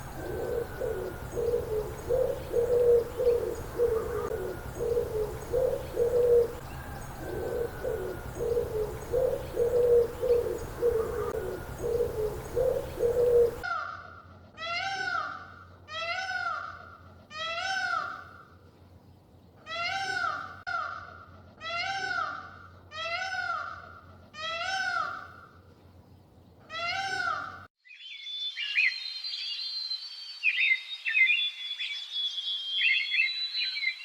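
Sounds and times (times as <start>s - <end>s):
bird cooing: 0.0s - 13.6s.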